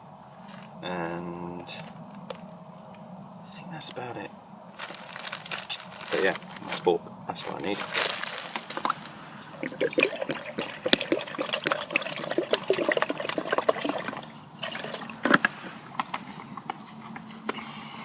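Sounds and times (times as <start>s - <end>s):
water pouring and glugging: 8.8s - 15.4s.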